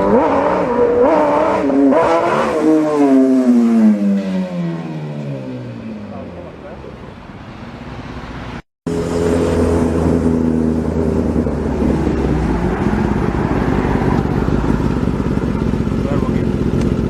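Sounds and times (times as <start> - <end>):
motorcycle engine running: 8.9 - 17.0.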